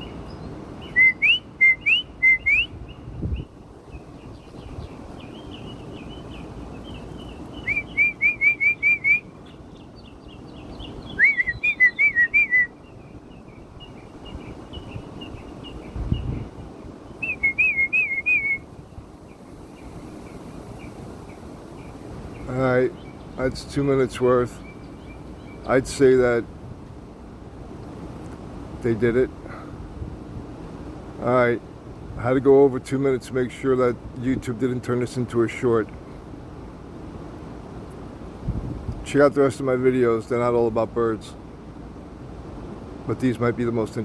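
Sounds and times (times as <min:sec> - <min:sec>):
songbirds whistling: 0:00.0 - 0:26.1
man whistling rising notes: 0:00.9 - 0:02.7, 0:07.6 - 0:09.2, 0:11.2 - 0:12.8, 0:17.2 - 0:18.6.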